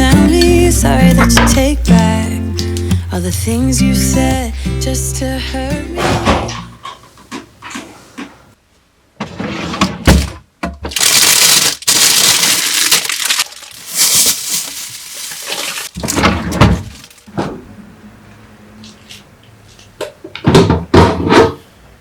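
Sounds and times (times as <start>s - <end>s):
food packaging crinkling: 10.9s - 17.3s.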